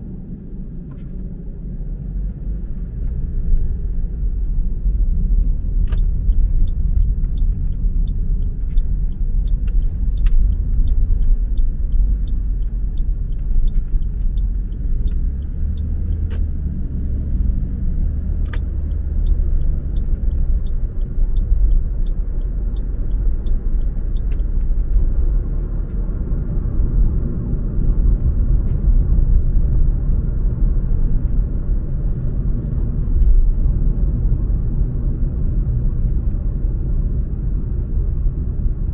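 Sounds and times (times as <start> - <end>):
car engine and tyre rumble: 0.0 - 38.9
light regular ticking: 5.3 - 16.5, 18.4 - 25.2.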